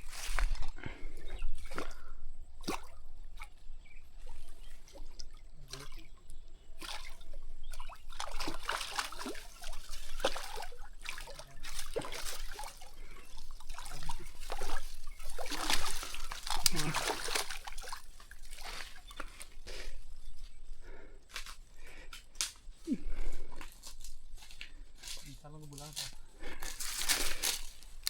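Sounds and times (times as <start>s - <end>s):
water trickling and sloshing: 0.0s - 21.1s, 26.6s - 28.0s
water splashing: 1.5s - 20.0s.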